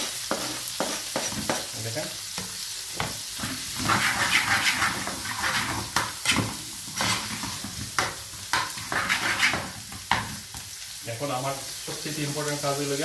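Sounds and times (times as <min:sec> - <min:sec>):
onions sizzling in oil: 0:00.0 - 0:13.0
spatula scraping a pan: 0:03.2 - 0:10.6.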